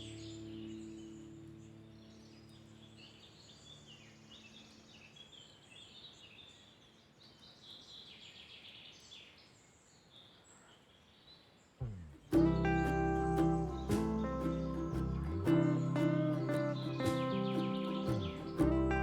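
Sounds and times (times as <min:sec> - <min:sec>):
small birds chirping and trilling: 0:00.0 - 0:19.0
soft background hiss: 0:11.6 - 0:19.0
low music notes: 0:11.8 - 0:19.0.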